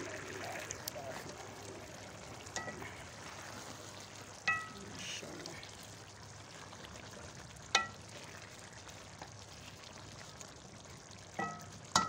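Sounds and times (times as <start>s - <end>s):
curry sizzling in a pan: 0.0s - 12.0s
spatula stirring: 2.3s - 4.8s
spatula knocking pan ringing: 4.5s - 4.8s, 11.4s - 12.0s.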